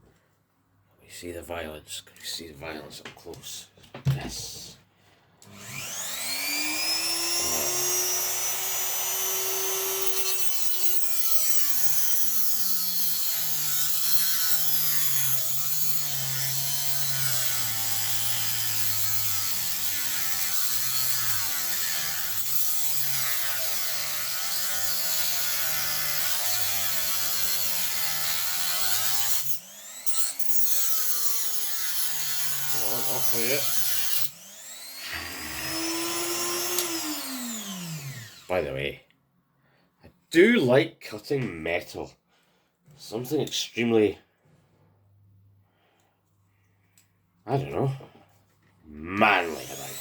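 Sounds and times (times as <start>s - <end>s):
rotary tool cutting metal: 5.5s - 38.5s, 49.2s - 50.0s.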